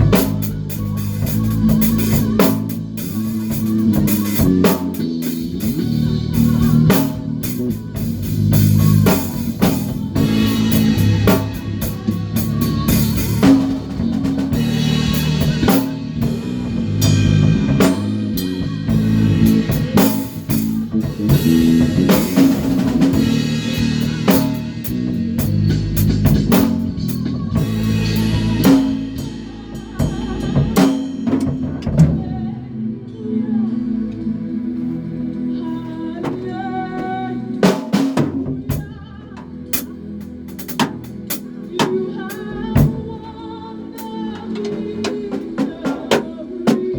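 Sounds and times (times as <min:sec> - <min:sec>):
drum kit hits and rimshots: 0:00.0 - 0:32.4, 0:36.2 - 0:39.0, 0:40.5 - 0:43.2
live band playing: 0:00.0 - 0:32.6, 0:36.2 - 0:46.9
bass guitar line: 0:00.0 - 0:33.1.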